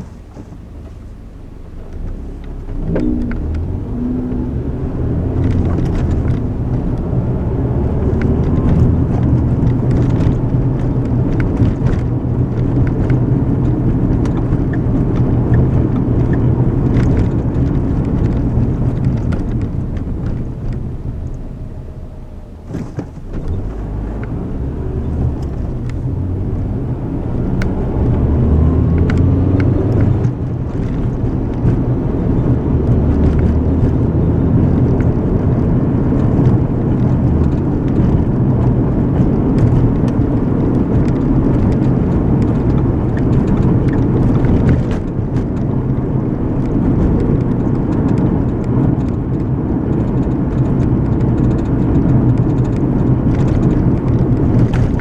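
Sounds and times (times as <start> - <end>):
car engine and tyre noise: 0.0 - 55.0.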